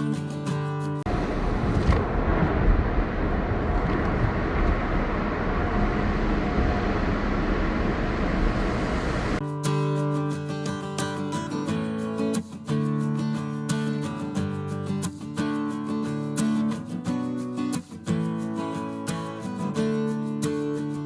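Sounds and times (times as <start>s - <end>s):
vehicle rumble and hiss: 1.1s - 9.4s.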